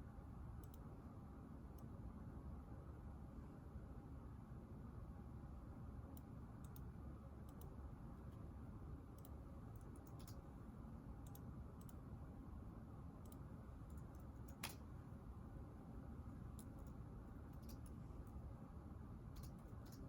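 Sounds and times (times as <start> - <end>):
sharp click: 14.5 - 14.8.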